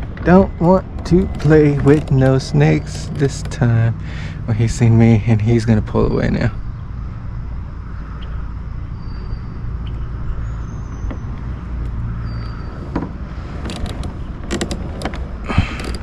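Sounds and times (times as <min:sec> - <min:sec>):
sharp clicks and knocks: 0:00.0 - 0:04.0, 0:10.9 - 0:16.0
steady low rumble: 0:00.0 - 0:16.0.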